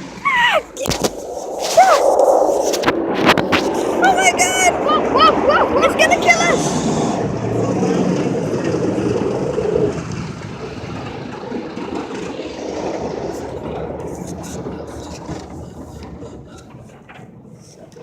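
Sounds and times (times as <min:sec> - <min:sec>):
car wash equipment rushing: 0:00.0 - 0:17.8.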